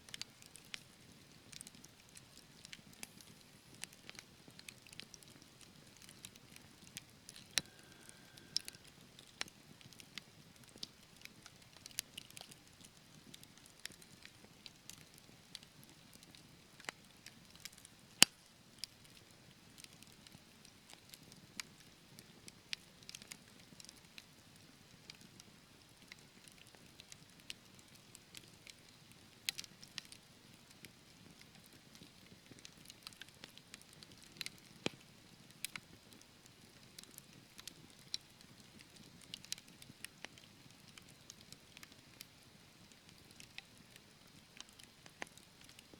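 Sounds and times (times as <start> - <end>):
faint low hiss: 0.0 - 11.5
logs crackling and popping: 0.0 - 45.9.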